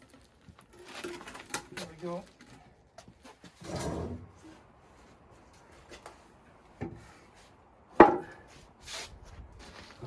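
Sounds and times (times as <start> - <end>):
heavy machine scraping on concrete: 3.6 - 4.3.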